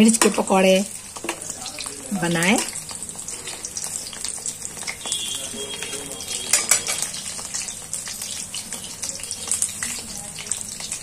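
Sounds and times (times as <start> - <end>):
deep-frying sizzle with crackles: 0.0 - 11.0
metal spoon clicking against pan: 6.5 - 7.1.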